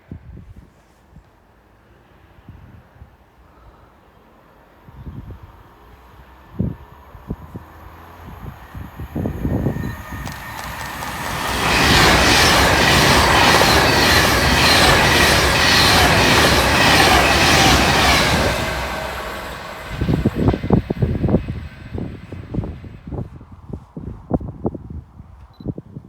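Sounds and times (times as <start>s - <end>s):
train passing at speed: 0.1s - 24.3s
wheels clicking over rails: 9.2s - 21.4s.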